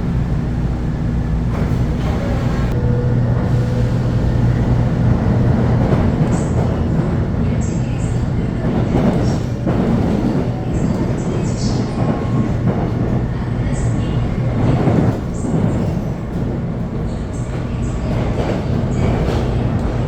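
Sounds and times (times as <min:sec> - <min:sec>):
train rumbling on rails: 0:00.0 - 0:20.0.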